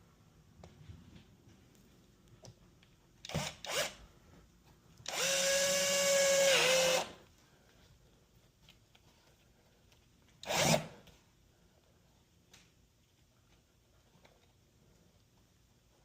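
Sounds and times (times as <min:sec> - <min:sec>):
power drill whining: 0:03.3 - 0:04.0, 0:05.1 - 0:07.2, 0:10.4 - 0:11.0.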